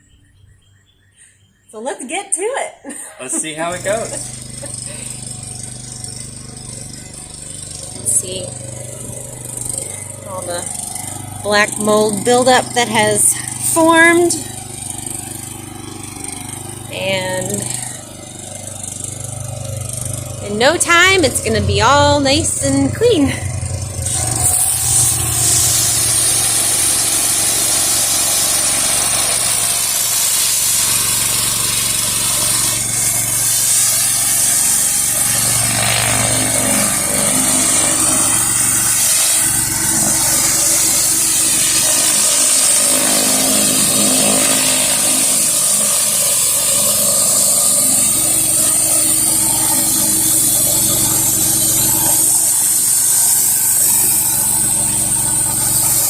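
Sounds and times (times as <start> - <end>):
pressure washer engine running: 2.9 - 56.0
water spraying on concrete: 19.9 - 56.0.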